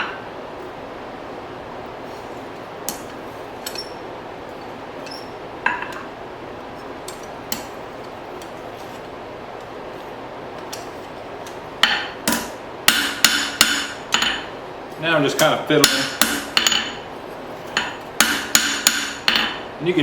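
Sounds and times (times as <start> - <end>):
hammer blows ringing on metal: 11.8 - 14.5, 15.8 - 17.0, 17.8 - 19.6.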